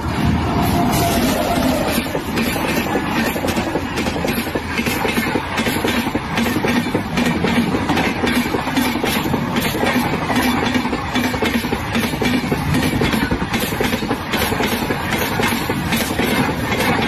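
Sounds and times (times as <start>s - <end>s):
clickety-clack over rail joints: 0.0s - 17.0s
train wheels rumbling on rails: 0.0s - 17.0s.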